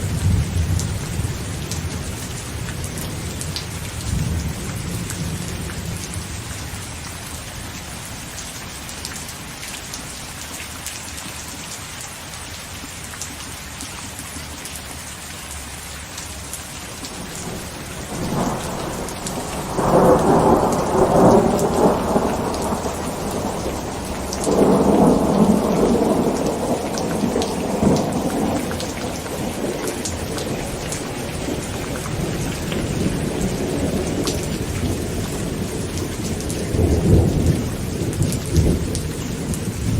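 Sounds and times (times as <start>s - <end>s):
thunder rumbling: 0.0s - 6.8s, 17.1s - 39.9s
heavy rain on a tent: 0.0s - 39.9s.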